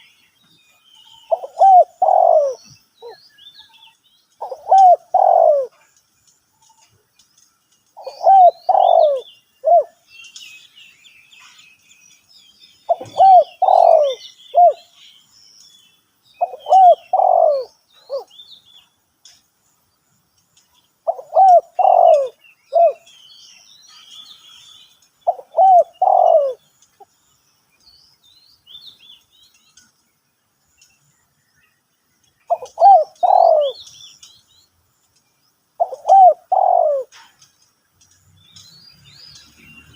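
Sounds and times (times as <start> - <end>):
small birds chirping: 0.0 - 39.9
dove cooing: 1.3 - 3.2, 4.4 - 5.8, 8.0 - 10.0, 12.9 - 14.8, 16.4 - 18.3, 21.0 - 23.1, 25.2 - 26.6, 32.5 - 33.8, 35.8 - 37.3.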